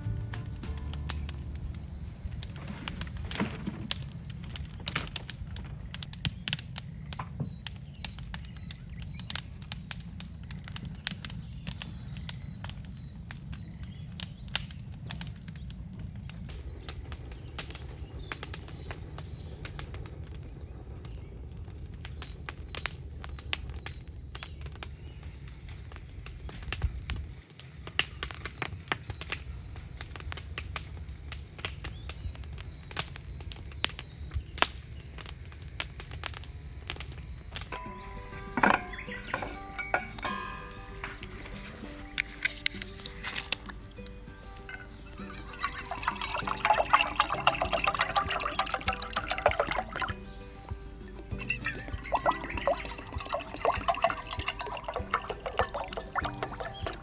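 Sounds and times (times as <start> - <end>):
bonfire crackling and popping: 0.0 - 37.8, 38.9 - 47.9
low rush of flames: 0.6 - 6.9
faint bird chirps: 36.6 - 57.0.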